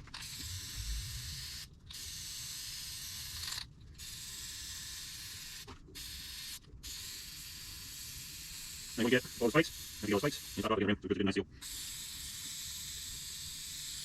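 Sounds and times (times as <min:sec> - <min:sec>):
aerosol can spraying: 0:04.0 - 0:10.8, 0:11.6 - 0:14.0.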